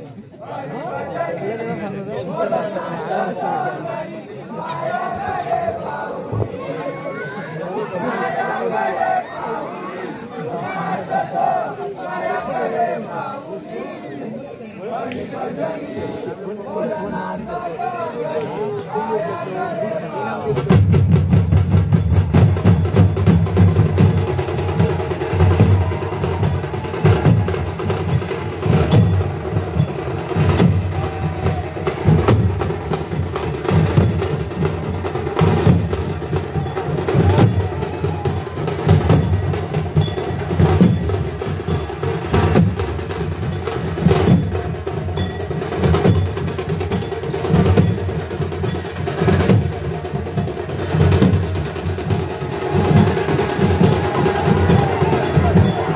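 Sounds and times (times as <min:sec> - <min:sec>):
drums beating steady rhythm: 0:20.2 - 0:55.9.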